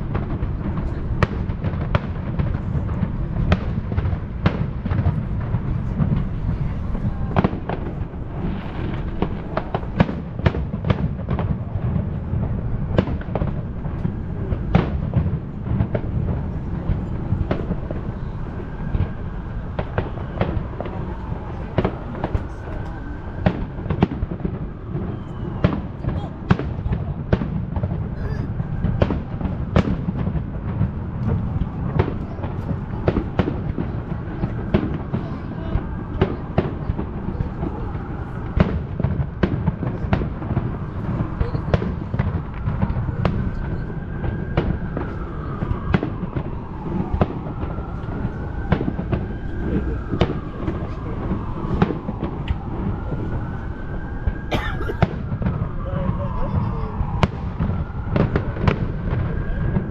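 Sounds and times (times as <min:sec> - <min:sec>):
firework bangs and crackles: 0:00.0 - 0:59.9
heavy low rumble: 0:00.0 - 0:59.9
firework whistles: 0:19.8 - 0:27.4.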